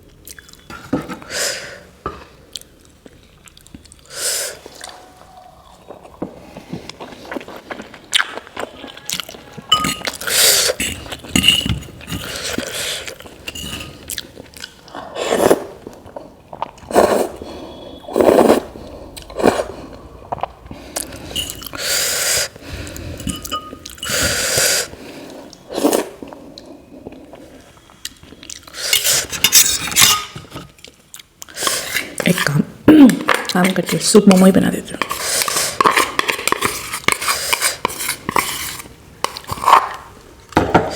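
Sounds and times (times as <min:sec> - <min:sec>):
person chewing food: 0:02.4 - 0:29.4
utensils clinking on a dish: 0:09.7 - 0:12.6, 0:13.4 - 0:14.0, 0:23.2 - 0:24.3, 0:28.9 - 0:30.7.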